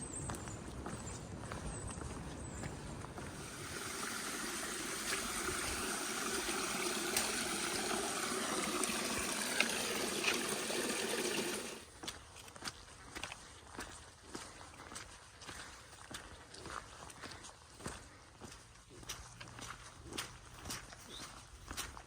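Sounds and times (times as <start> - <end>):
water running: 3.2 - 11.8.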